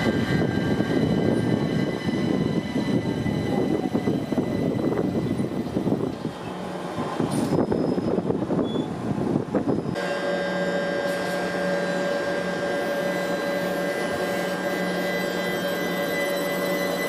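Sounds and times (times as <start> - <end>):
train rumble: 0.0 - 10.0
train electrical whine: 0.0 - 17.0.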